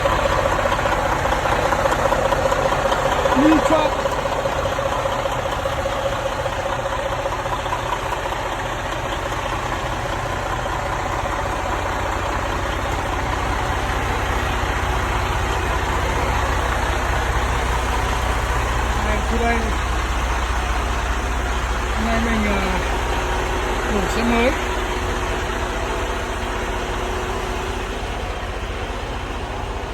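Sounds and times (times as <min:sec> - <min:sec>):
diesel truck engine idling: 0:00.0 - 0:29.9.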